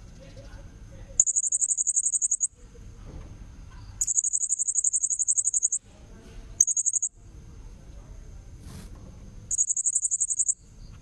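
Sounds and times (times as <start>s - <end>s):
parrot high pulsed trills: 1.2s - 2.5s, 4.0s - 5.8s, 6.6s - 7.1s, 9.5s - 10.6s.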